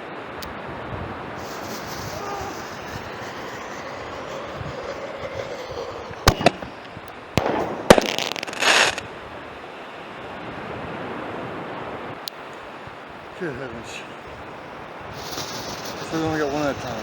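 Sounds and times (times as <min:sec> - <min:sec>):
firework crackling: 0:01.4 - 0:09.1, 0:15.2 - 0:17.0
firework mortar bangs: 0:07.4 - 0:09.0.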